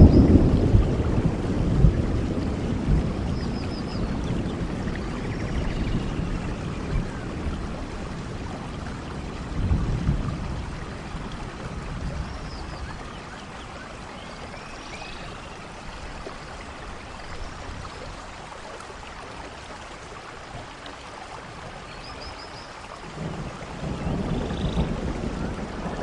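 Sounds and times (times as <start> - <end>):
low thunder rumble: 0.0 - 14.5, 23.0 - 26.0
rain falling: 0.0 - 26.0.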